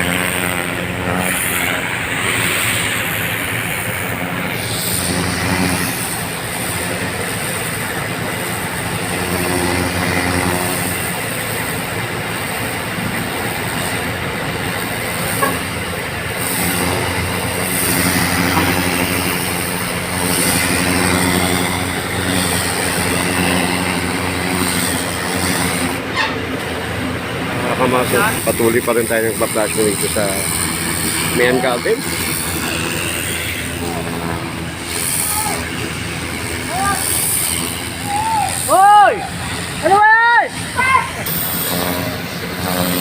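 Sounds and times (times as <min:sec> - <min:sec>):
water hissing from hose: 0:00.0 - 0:43.0
water pump engine running: 0:00.0 - 0:43.0.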